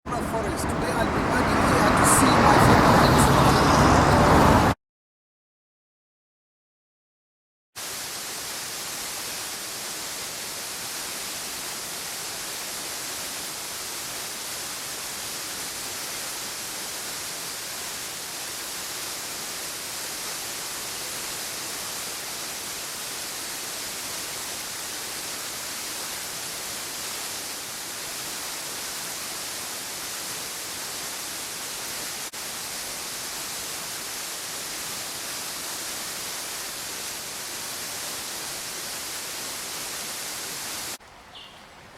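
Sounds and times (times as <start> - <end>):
steady rushing hiss: 7.8 - 41.9.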